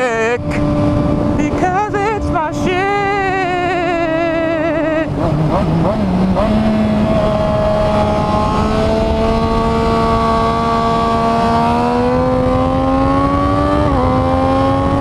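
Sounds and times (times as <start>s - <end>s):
rough wind noise: 0.0s - 15.0s.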